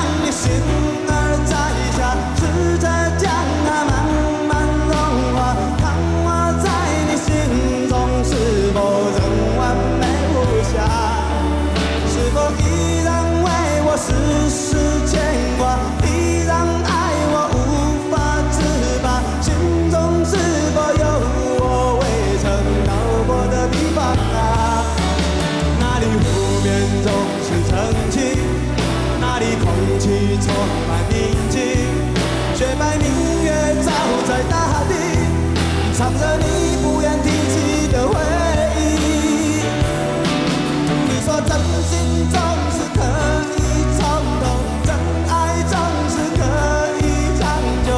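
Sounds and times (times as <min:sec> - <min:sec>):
man singing: 0:00.0 - 0:47.9
pulsing bass and drums: 0:00.0 - 0:47.9.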